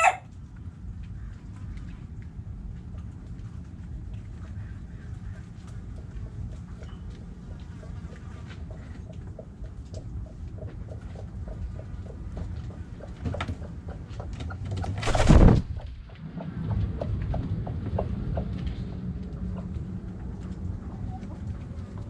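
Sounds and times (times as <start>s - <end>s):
chickens and birds calling: 0.0s - 0.2s, 4.2s - 16.6s
low rumble: 15.0s - 22.0s.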